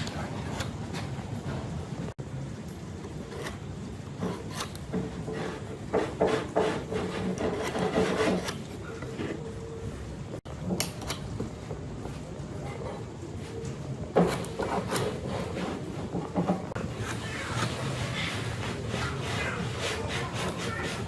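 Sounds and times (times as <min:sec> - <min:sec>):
scraping on wood: 0:03.2 - 0:09.5, 0:12.7 - 0:21.0.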